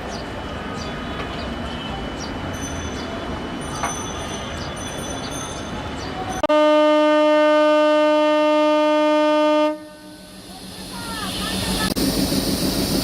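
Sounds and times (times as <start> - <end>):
long horn blast: 6.5 - 10.2.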